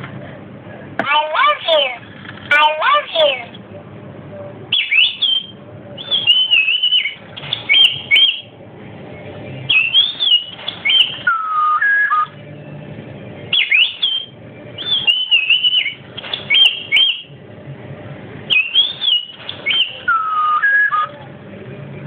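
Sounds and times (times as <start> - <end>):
pet bird whistling and chirping: 4.7 - 8.5, 9.7 - 12.3, 13.5 - 17.3, 18.5 - 21.1.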